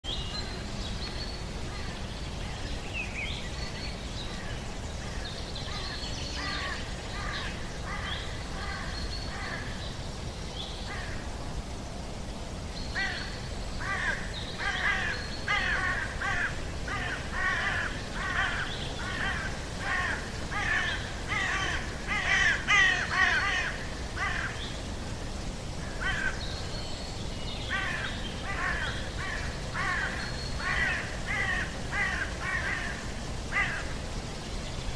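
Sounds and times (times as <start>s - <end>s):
birds harsh repeated calls: 12.9s - 24.8s, 27.7s - 34.1s.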